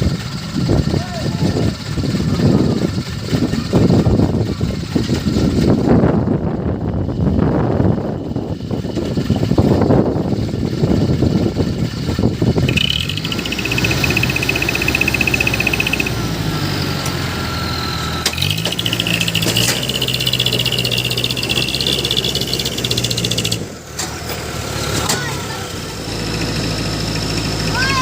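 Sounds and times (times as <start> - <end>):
truck engine running hard: 0.0 - 28.0
high whine: 12.6 - 23.8.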